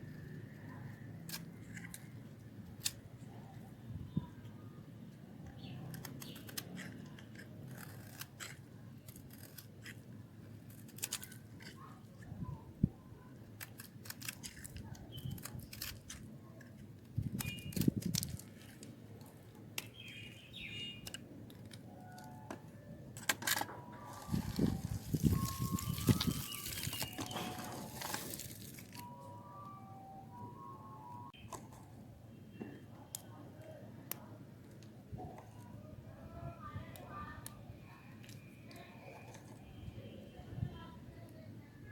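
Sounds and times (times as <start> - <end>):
knife cutting hard soap: 5.9 - 11.8.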